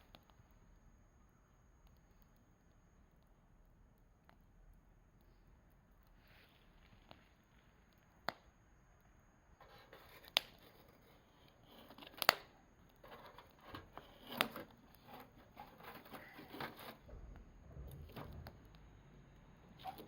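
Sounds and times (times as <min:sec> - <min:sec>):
campfire crackling: 0:00.0 - 0:20.0
sharp fire pops: 0:12.1 - 0:12.6.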